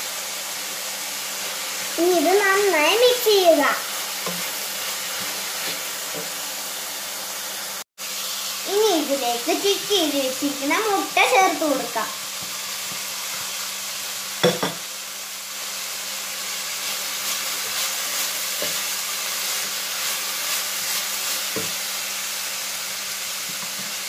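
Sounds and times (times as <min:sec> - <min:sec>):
food sizzling in a pan: 0:00.0 - 0:24.0
spatula knocking on pan: 0:14.4 - 0:14.8.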